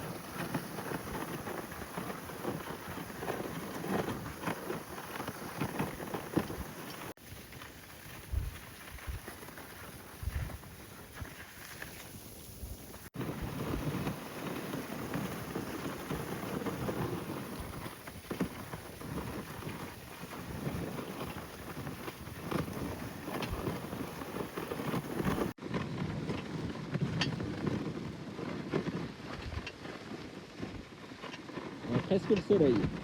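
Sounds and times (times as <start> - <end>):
dogs running patter: 0.0 - 26.7
sled runners scraping over snow: 0.0 - 33.0
wind on microphone: 8.0 - 30.9.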